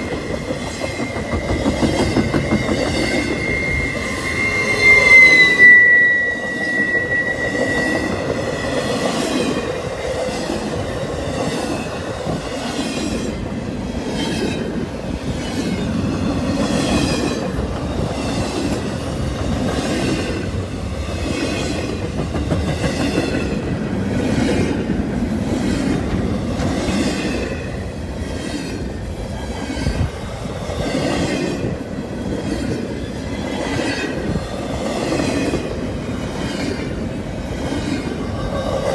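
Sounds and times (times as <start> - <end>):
train wheels clattering: 0.0 - 28.9
wheel squeal: 0.2 - 10.5.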